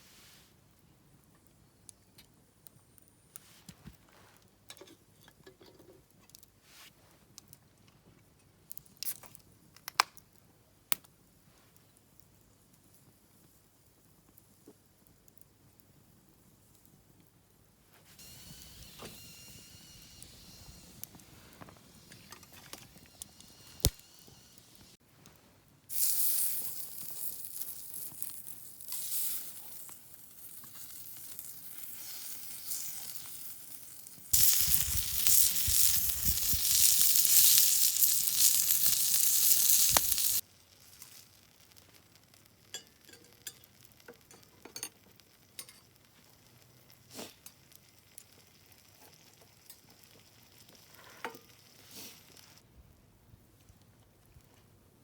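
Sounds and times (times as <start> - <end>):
campfire crackling: 8.6 - 17.2, 18.0 - 52.6
food sizzling on griddle: 18.2 - 25.0, 25.9 - 52.6.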